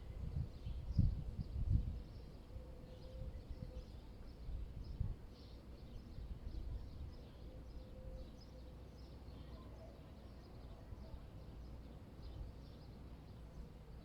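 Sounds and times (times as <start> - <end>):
low rumble of wind: 0.0 - 14.0
small birds chirping: 5.3 - 14.0.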